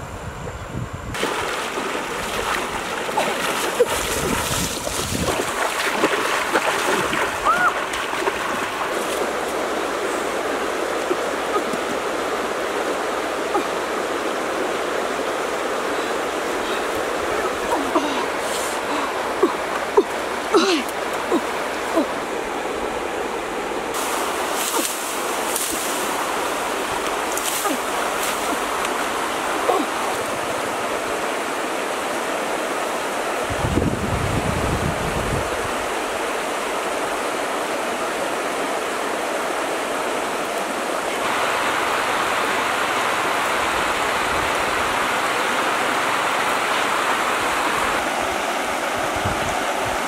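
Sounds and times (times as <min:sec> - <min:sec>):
river flowing over stones: 0:01.2 - 0:33.5, 0:34.6 - 0:50.0.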